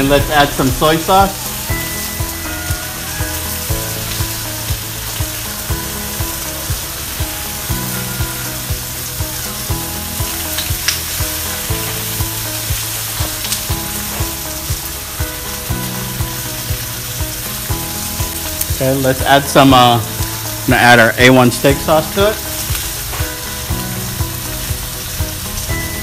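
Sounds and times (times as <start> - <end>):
background music with beat: 0.0 - 26.0
meat sizzling on a griddle: 0.0 - 26.0.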